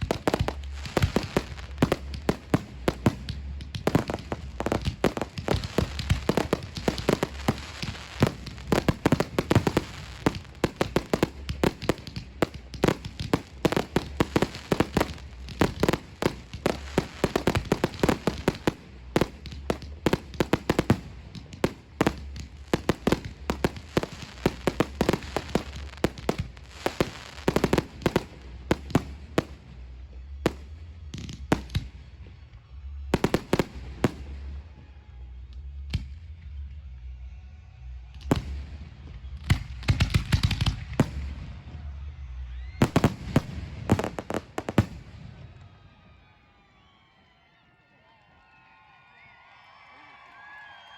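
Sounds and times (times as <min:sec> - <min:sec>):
firework shells bursting: 0:00.0 - 0:29.6
fireworks crackling: 0:00.0 - 0:34.8, 0:38.2 - 0:46.0.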